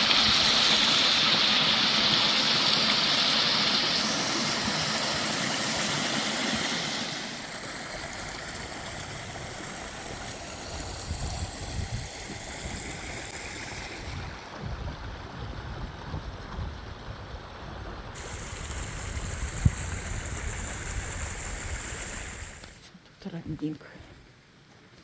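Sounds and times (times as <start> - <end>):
mountain stream rushing: 0.0 - 22.8
wind buffeting microphone: 9.2 - 22.8.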